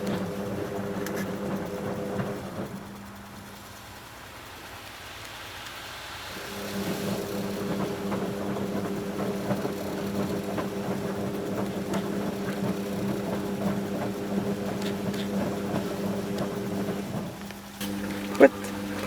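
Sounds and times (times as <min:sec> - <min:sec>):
washing machine motor humming: 0:00.0 - 0:03.4, 0:06.3 - 0:19.0
laundry and water sloshing: 0:06.5 - 0:19.0.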